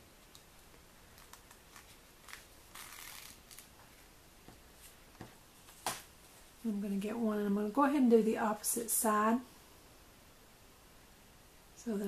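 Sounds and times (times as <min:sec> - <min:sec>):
light ticks of paper: 0:00.2 - 0:02.5.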